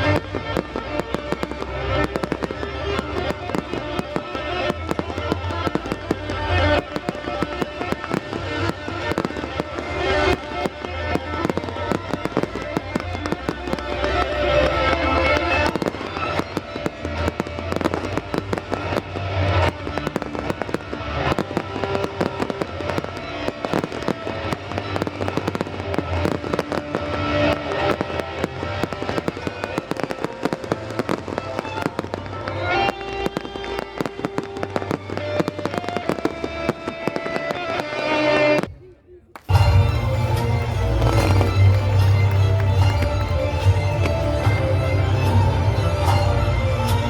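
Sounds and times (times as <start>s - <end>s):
fireworks bangs and crackles: 0.0s - 47.0s
loud music: 39.5s - 47.0s.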